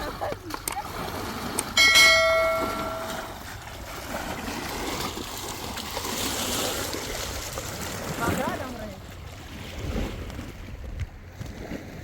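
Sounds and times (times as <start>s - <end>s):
spring water rushing: 0.0s - 9.9s
metallic clang ringing: 1.8s - 3.4s.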